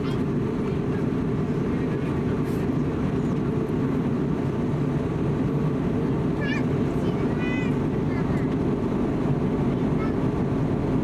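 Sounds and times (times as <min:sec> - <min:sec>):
cabin engine and airflow rumble: 0:00.0 - 0:11.0.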